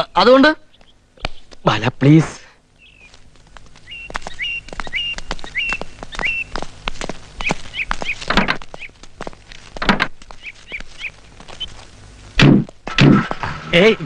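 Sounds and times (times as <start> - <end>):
bird chirping: 0.0 - 1.7, 2.8 - 9.0, 9.9 - 11.9
dull thumps: 12.4 - 13.6.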